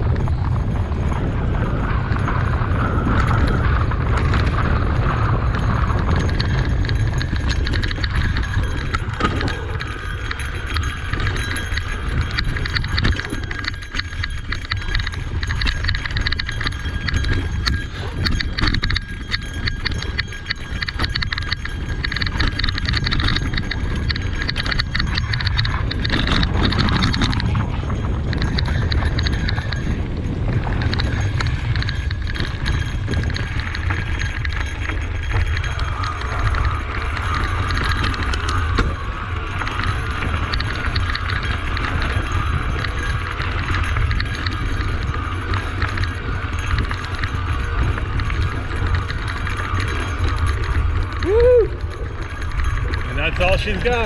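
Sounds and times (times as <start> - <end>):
bike rattling over rough trail: 0.0 - 54.0
low rumble: 0.0 - 54.0.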